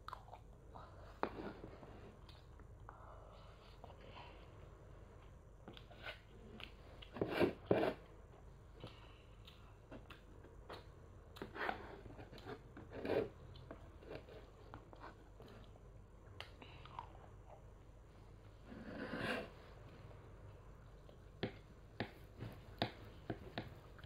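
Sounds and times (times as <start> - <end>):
child chewing food: 0.0 - 18.1.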